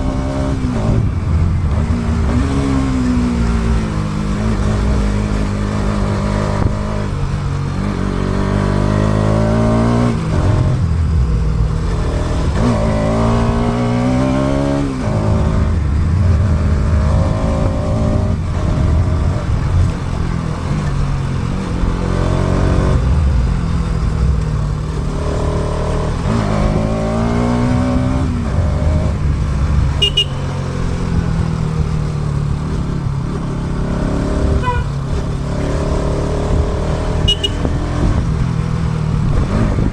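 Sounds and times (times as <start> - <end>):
motorcycle engine accelerating: 0.0 - 39.9
wind and road noise: 0.0 - 39.9
short high beep: 30.0 - 30.7, 37.3 - 37.8.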